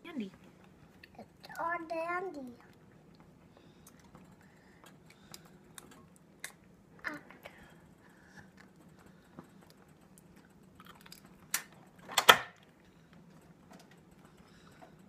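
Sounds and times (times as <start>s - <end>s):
child chewing candy: 2.4s - 12.0s.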